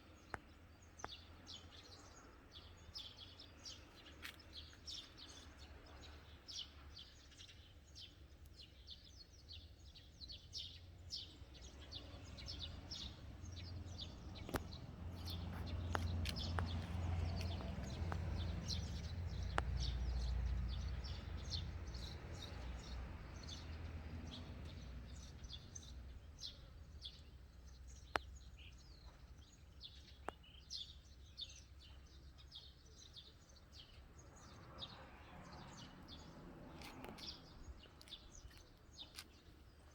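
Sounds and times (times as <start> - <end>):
small birds chirping: 0.0 - 39.9
passing road vehicle rumble: 11.4 - 26.5, 34.0 - 39.3.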